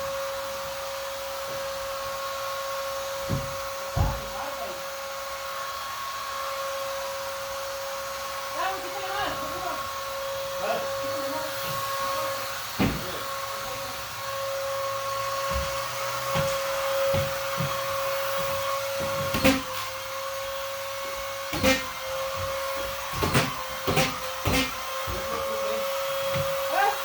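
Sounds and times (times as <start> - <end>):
vacuum cleaner motor whine: 0.0 - 27.0
sharp knocks: 3.2 - 4.4, 12.8 - 13.2, 21.5 - 25.3.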